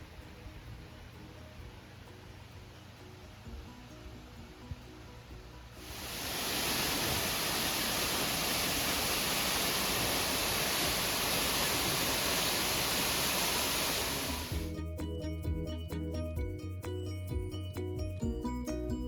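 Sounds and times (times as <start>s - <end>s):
background music: 0.0s - 6.2s, 14.1s - 19.0s
water rushing over waterfall: 5.8s - 14.7s.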